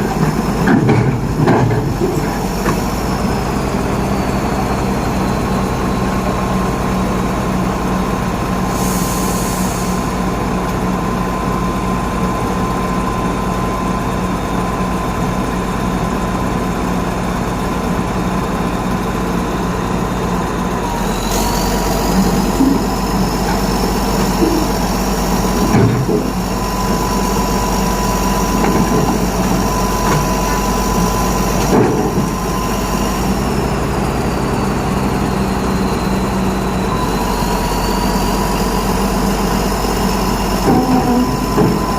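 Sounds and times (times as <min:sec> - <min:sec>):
clunks: 0:00.0 - 0:02.9, 0:25.4 - 0:27.0, 0:28.3 - 0:32.6, 0:40.5 - 0:41.9
heavy diesel engine running: 0:00.0 - 0:41.9.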